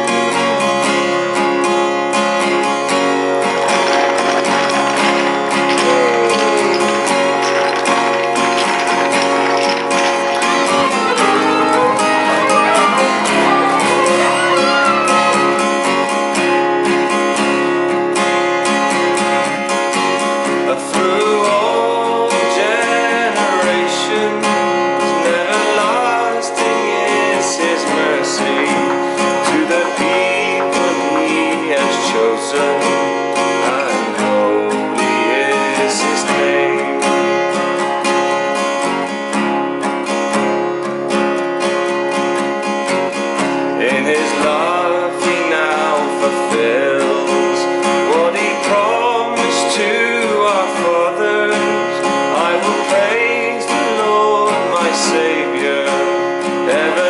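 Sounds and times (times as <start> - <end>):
acoustic guitar strumming: 0.0 - 57.0
wavering melody line: 10.6 - 16.1.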